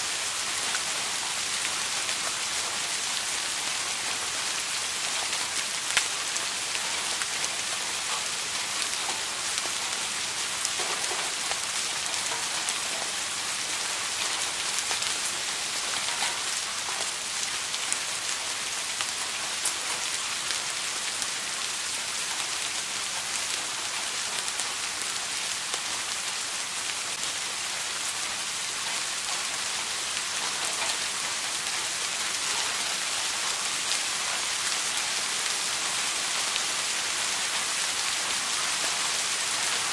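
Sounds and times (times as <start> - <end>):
steady rain hiss: 0.0 - 39.9
raindrops ticking: 5.1 - 18.4.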